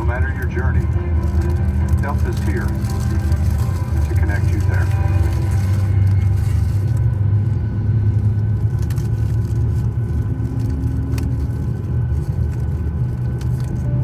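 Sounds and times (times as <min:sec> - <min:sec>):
cabin air conditioning hum: 0:00.0 - 0:13.8.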